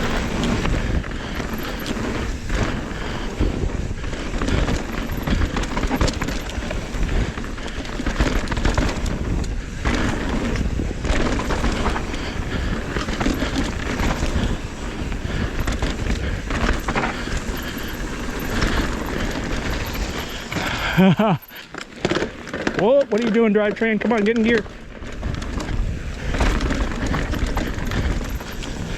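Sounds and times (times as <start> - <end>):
wind rush on microphone: 0.0 - 21.7, 24.5 - 28.9
bike rattling over ground: 0.0 - 28.9.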